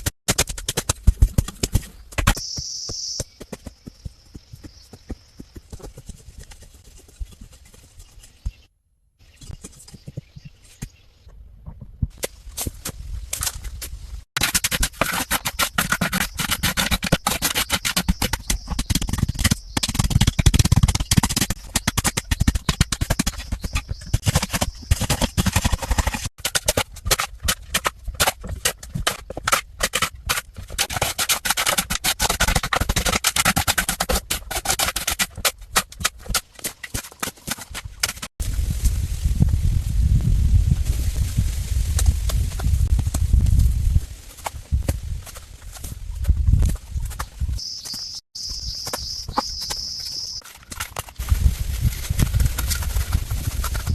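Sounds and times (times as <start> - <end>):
rapid scraping and rubbing: 14.3 - 38.3, 48.8 - 53.9.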